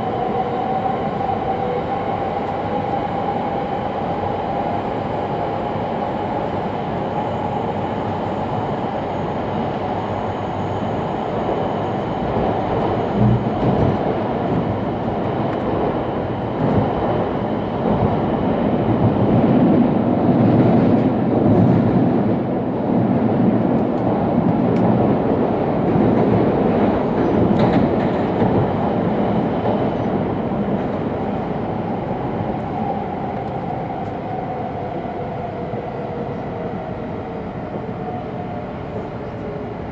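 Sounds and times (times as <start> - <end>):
train wheels rumbling: 11.4 - 39.9.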